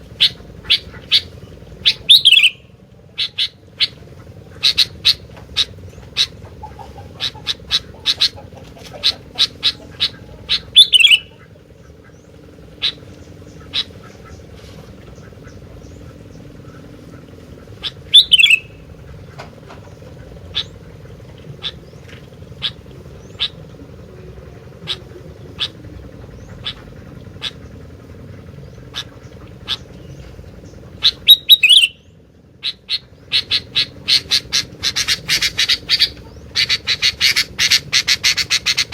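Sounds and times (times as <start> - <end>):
steady low hum: 0.0 - 38.9
bird chirping: 0.2 - 4.0, 4.6 - 14.5, 17.8 - 18.8, 28.6 - 38.9
louder downward-sweeping bird call: 1.9 - 2.6, 10.5 - 11.4, 18.1 - 18.8, 31.0 - 32.8.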